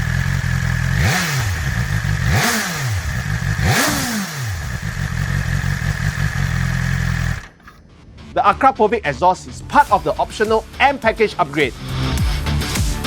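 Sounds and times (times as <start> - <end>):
motorcycle engine revving: 0.0 - 7.8.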